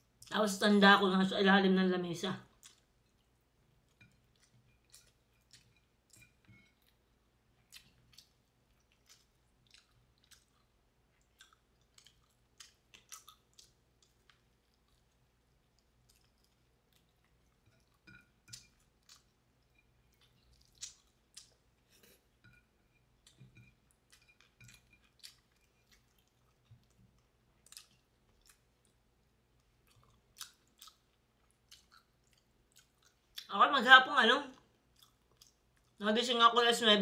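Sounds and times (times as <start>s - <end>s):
chewing mouth clicks: 2.6s - 3.3s, 3.9s - 7.0s, 7.6s - 22.2s, 23.2s - 29.0s, 29.6s - 33.5s, 34.9s - 36.0s.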